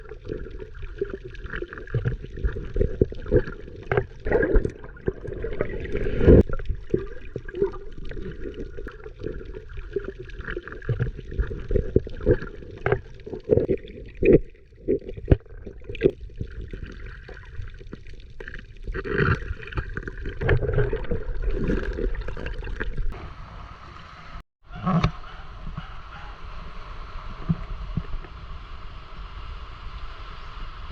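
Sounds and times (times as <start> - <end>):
water splashing and sloshing: 0.0 - 23.2.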